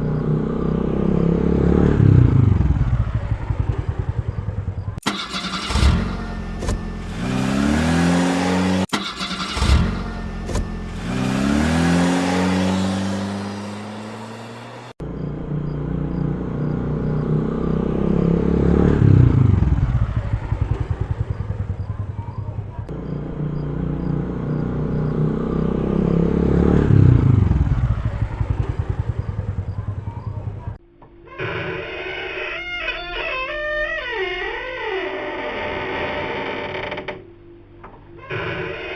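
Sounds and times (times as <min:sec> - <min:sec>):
deep engine rumbling: 0:00.0 - 0:30.8
engine revving: 0:00.0 - 0:30.8.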